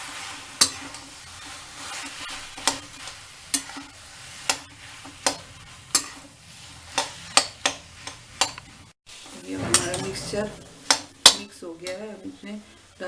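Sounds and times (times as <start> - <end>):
spoon stirring food: 0.0 - 8.9
low sizzle in frying pan: 0.0 - 13.0.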